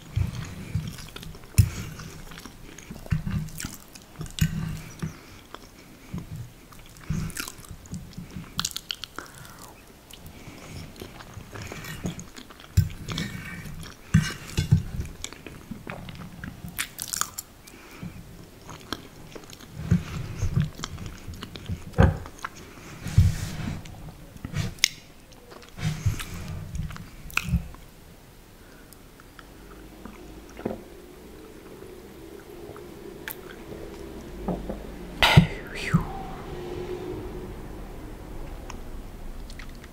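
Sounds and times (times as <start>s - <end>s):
close-miked chewing: 0.0s - 23.0s, 28.7s - 34.2s.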